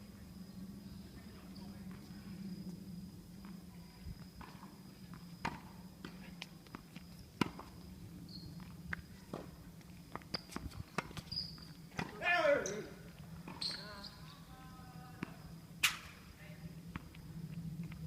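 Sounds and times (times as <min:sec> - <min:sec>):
steady low hum: 0:00.0 - 0:18.0
sharp taps and knocks on a court: 0:10.1 - 0:11.4.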